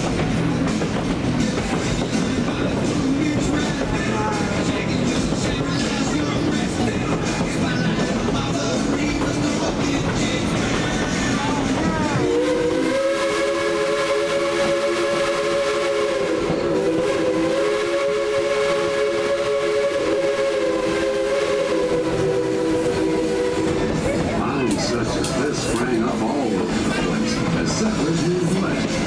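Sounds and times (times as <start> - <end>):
running train: 0.0 - 29.0
steam locomotive chime whistle: 12.2 - 24.0.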